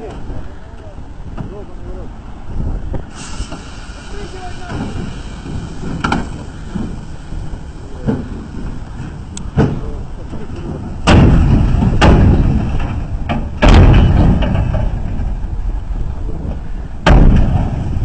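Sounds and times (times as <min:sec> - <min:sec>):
truck engine rumble: 0:00.0 - 0:18.0
heavy thuds: 0:04.7 - 0:18.0
knocks and bangs from truck body: 0:09.5 - 0:09.9, 0:10.6 - 0:15.6, 0:17.0 - 0:18.0.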